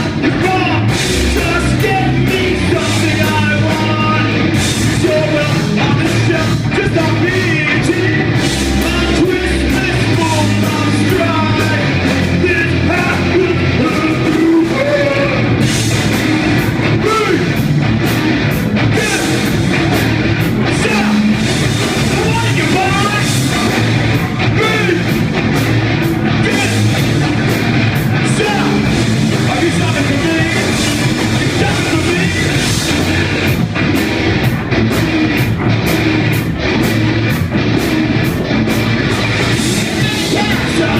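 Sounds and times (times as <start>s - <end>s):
rock band playing live: 0.0s - 40.9s
person singing: 5.0s - 15.6s, 28.0s - 33.5s, 39.6s - 40.9s.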